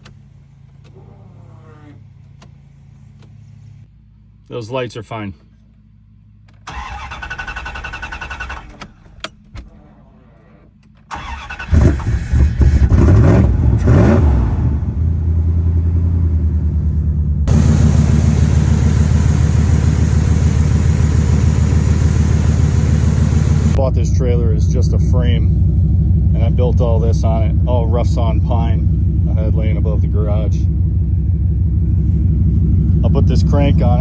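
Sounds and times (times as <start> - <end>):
pickup engine cranking and idling: 5.6 - 34.0.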